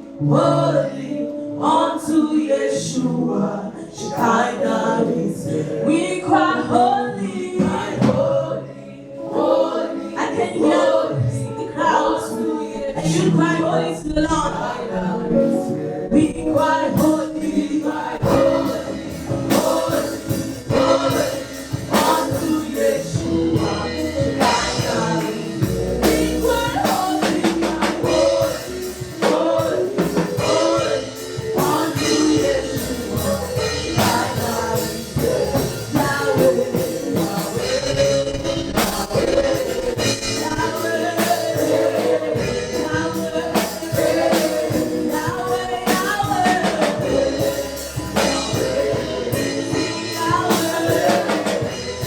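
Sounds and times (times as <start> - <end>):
choir singing gospel: 0.0 - 52.0
live band playing: 12.6 - 52.0
drum hits: 16.4 - 52.0.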